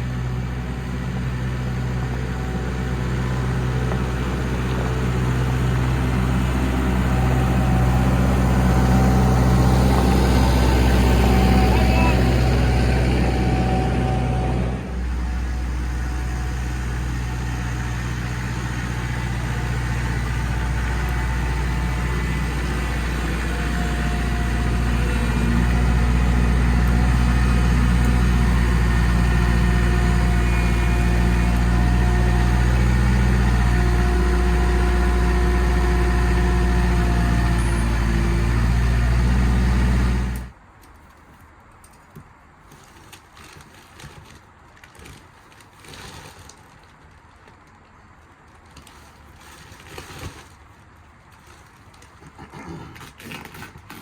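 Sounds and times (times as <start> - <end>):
engine running with low hum: 0.0 - 40.6.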